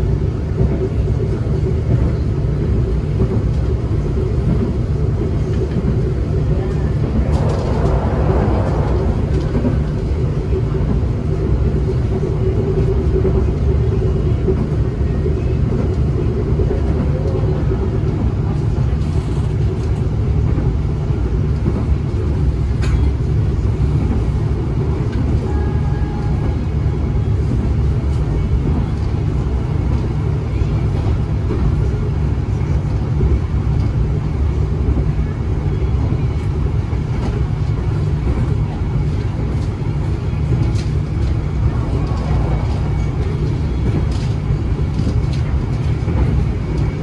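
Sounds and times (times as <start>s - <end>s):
train rumbling on rails: 0.0s - 47.0s.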